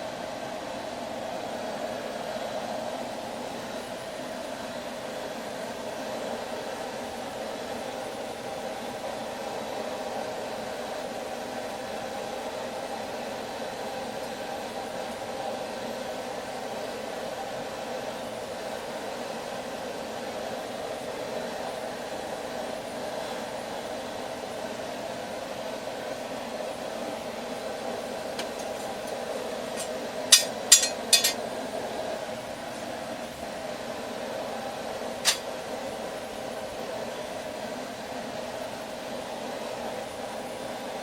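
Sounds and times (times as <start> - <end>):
forge blower air rush: 0.0 - 41.0
hammer striking steel: 30.3 - 31.4.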